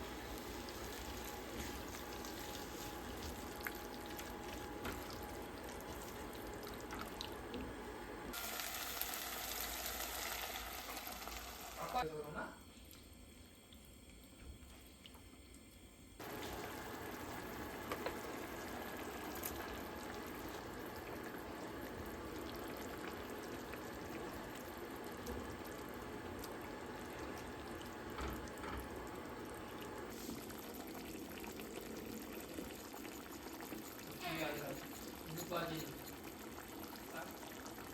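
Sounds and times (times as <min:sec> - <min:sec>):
tap water running into sink: 0:17.8 - 0:29.0.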